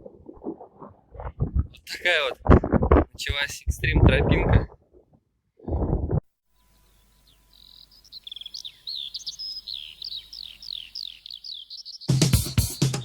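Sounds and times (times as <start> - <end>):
songbird chirping: 6.6 - 13.0
music with drum beat: 12.1 - 13.0.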